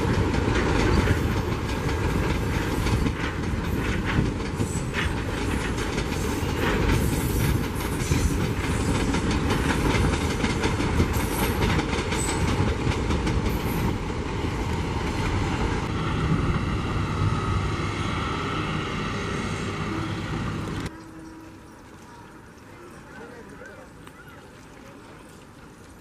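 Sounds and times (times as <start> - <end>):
train wheels clicking over rail joints: 0.0 - 15.9.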